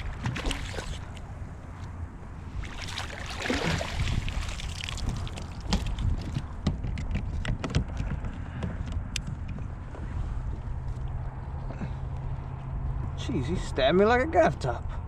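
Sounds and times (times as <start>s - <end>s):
knocks and clicks on a kayak: 5.0s - 9.7s.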